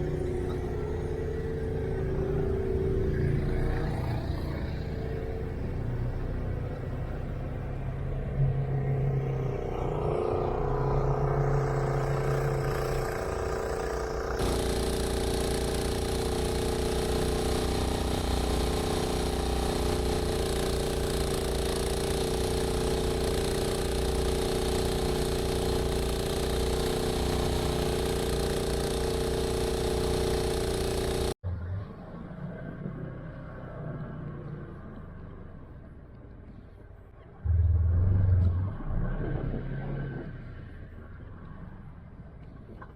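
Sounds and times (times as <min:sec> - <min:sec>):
snow-clearing machine engine: 0:00.0 - 0:31.4.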